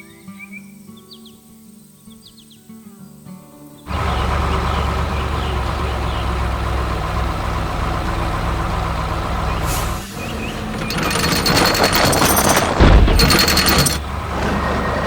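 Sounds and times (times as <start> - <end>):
construction machine engine rumbling: 3.9 - 15.0.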